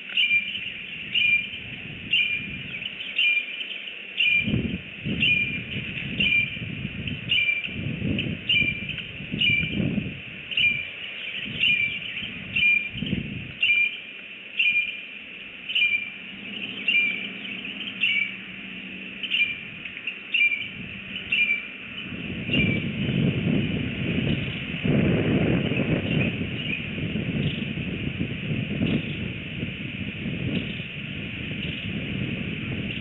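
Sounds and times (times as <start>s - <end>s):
bird chirping: 0.0s - 9.9s, 10.5s - 24.8s, 25.6s - 27.7s
low rumble: 15.5s - 33.0s.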